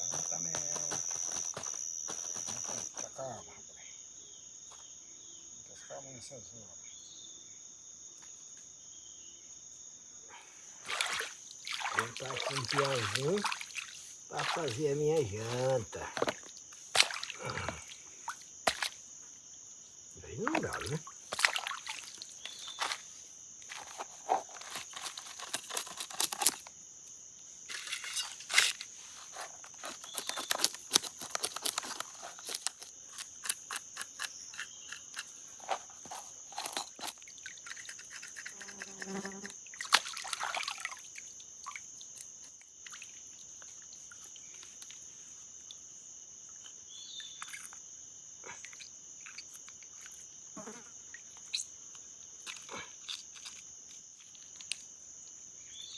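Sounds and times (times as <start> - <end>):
crickets and insects chirring: 0.0 - 55.9
handling knocks and rustles: 10.9 - 17.9, 20.5 - 26.8, 27.7 - 40.6.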